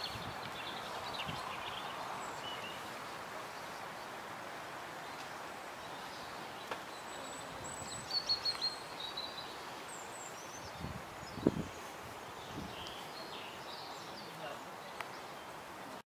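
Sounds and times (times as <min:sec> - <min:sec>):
small bird chirping: 0:05.1 - 0:15.5.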